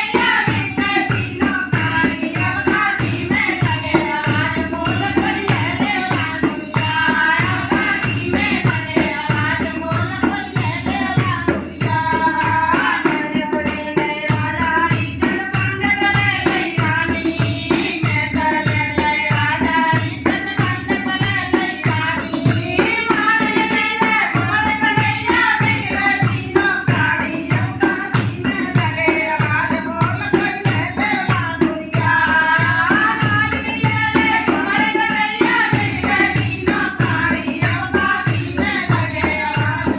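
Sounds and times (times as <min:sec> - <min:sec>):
devotional folk singing: 0:00.0 - 0:39.9
jingling percussion: 0:00.0 - 0:39.9
steady drum beat: 0:00.0 - 0:39.9.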